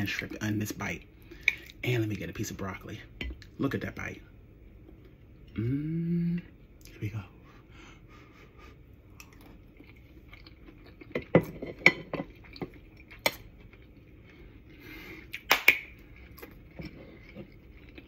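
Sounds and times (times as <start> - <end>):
person chewing food: 8.0 - 18.0.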